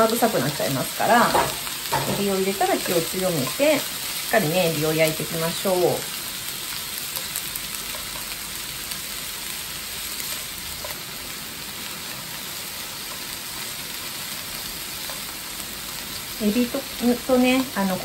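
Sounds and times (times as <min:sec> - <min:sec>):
food sizzling in a frying pan: 0:00.0 - 0:18.0
chopsticks tapping a pan: 0:01.2 - 0:04.0, 0:07.1 - 0:08.4, 0:15.0 - 0:15.3.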